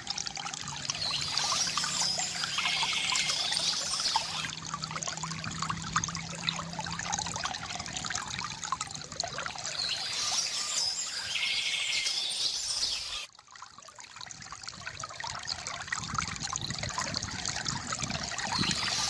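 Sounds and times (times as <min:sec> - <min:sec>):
fountain water trickling into basin: 0:00.0 - 0:19.0
birds chirping: 0:00.9 - 0:04.5, 0:09.7 - 0:13.3, 0:18.6 - 0:19.0.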